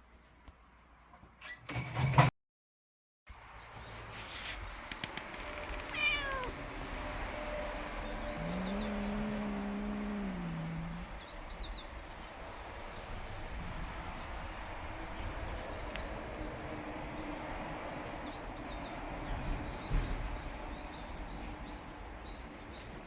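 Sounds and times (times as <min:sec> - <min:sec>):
cat meowing: 0:05.9 - 0:06.6.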